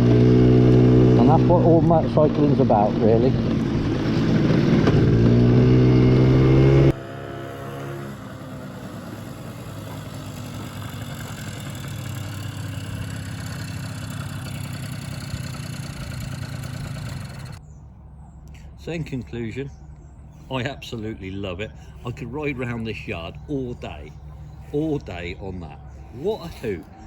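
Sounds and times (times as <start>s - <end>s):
scooter engine buzzing: 0.0s - 17.8s.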